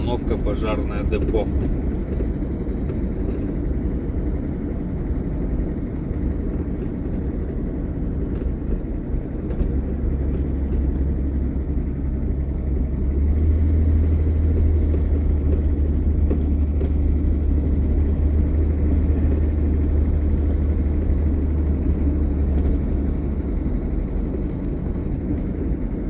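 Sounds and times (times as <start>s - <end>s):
vehicle engine and road drone: 0.0s - 26.0s.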